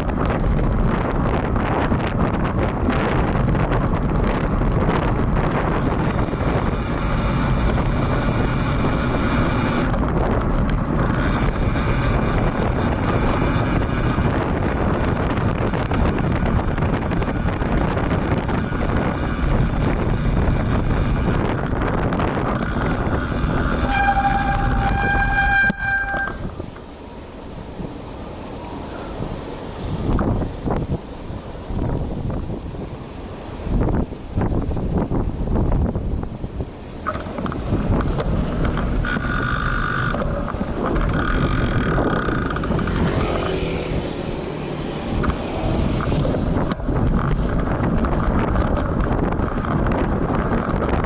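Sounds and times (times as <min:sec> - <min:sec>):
traffic noise: 0:00.0 - 0:51.0
wind and road noise rushing: 0:00.0 - 0:51.0
high steady whine: 0:05.2 - 0:26.9
steady horn-like tone: 0:22.5 - 0:26.6.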